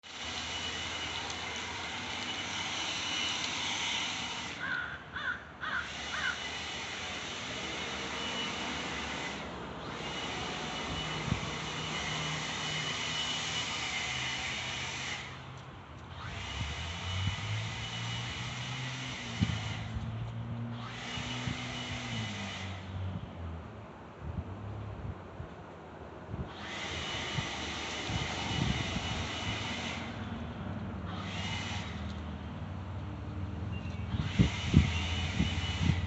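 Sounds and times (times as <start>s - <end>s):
vacuum cleaner whine: 0.0s - 4.6s, 5.9s - 15.2s, 16.2s - 19.8s, 26.5s - 30.3s, 31.1s - 32.2s, 34.1s - 36.0s.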